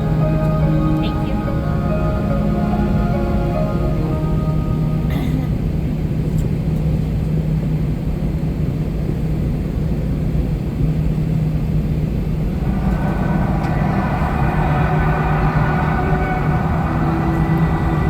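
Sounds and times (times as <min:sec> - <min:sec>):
high-pitched whine: 0:12.4 - 0:18.0.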